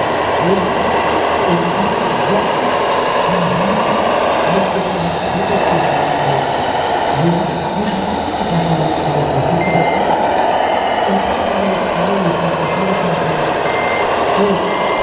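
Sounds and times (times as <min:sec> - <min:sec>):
model machines running: 0:00.0 - 0:15.0
short reversing beeps: 0:03.3 - 0:15.0.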